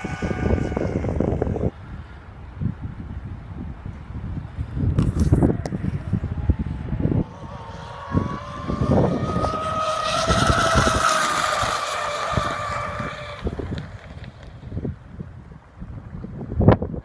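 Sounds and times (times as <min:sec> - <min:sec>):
wind buffeting microphone: 0:00.0 - 0:17.0
electric motors whining: 0:07.0 - 0:14.4.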